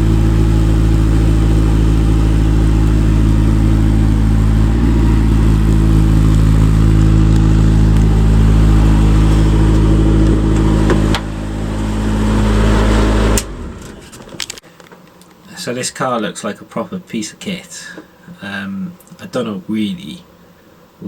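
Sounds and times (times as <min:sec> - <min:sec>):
race car engine running: 0:00.0 - 0:14.6.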